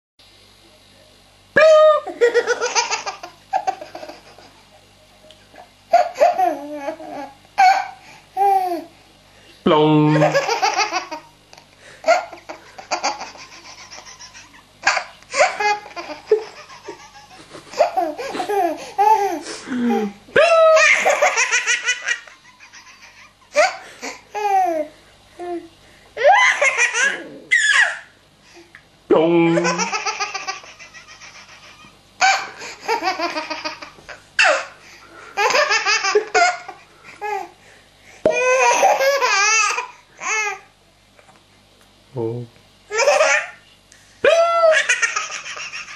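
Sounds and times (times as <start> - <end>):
baby laughing: 1.6 - 4.6, 5.9 - 8.9, 10.1 - 25.6, 26.2 - 28.1, 29.6 - 34.8, 35.4 - 37.5, 38.3 - 40.6, 42.9 - 43.6, 44.5 - 45.9.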